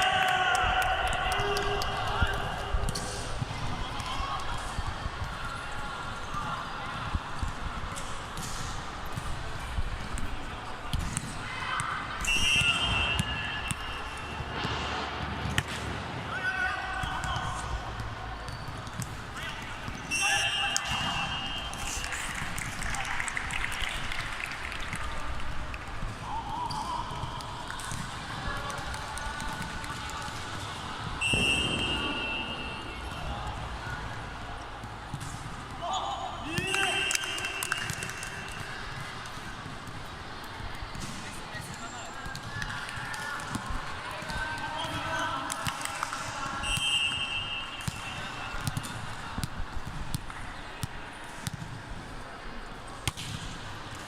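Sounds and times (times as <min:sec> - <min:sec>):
crowd and court noise: 0:00.0 - 0:54.0
shrill whistle: 0:12.2 - 0:13.5, 0:31.2 - 0:32.8, 0:46.6 - 0:47.8
sneaker squeak: 0:12.2 - 0:14.8, 0:18.4 - 0:21.7, 0:31.2 - 0:33.0, 0:46.6 - 0:48.9.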